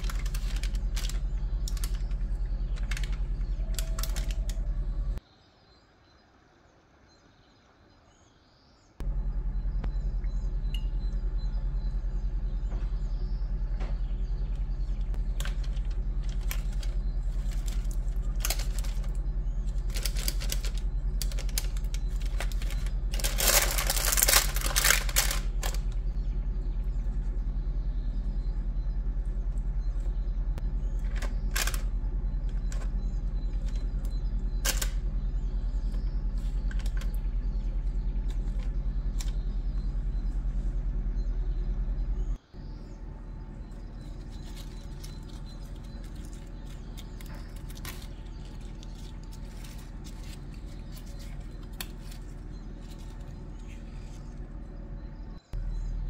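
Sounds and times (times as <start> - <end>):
parchment paper crinkling: 0.0 - 5.2, 15.1 - 26.2, 31.0 - 35.1, 35.9 - 39.9, 43.7 - 54.8
steady low hum: 0.0 - 5.2, 9.0 - 56.0.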